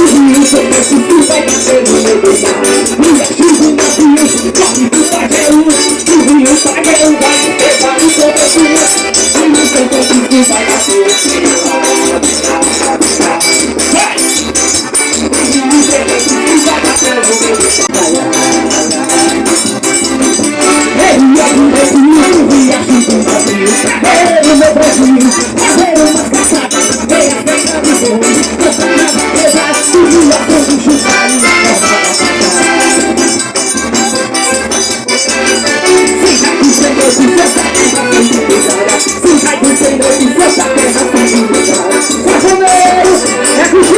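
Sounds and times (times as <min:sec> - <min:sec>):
band playing sustained melody: 0:00.0 - 0:43.9
jingling shaker percussion: 0:00.0 - 0:43.9.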